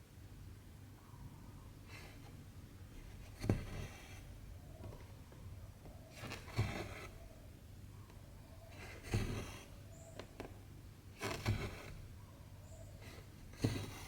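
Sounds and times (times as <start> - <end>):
thread rasping through fabric: 6.2 - 7.2, 8.7 - 10.5, 11.2 - 12.2, 13.0 - 14.0.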